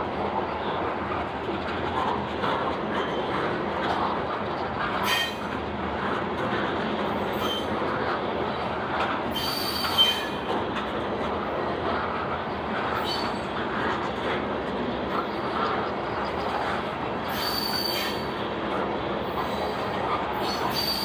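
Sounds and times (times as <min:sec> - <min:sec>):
freight train wheels rumbling: 0:00.0 - 0:21.0
steel wheels squealing: 0:05.0 - 0:05.4, 0:07.3 - 0:07.8, 0:09.3 - 0:10.5, 0:13.0 - 0:13.5, 0:17.2 - 0:18.3, 0:19.3 - 0:21.0.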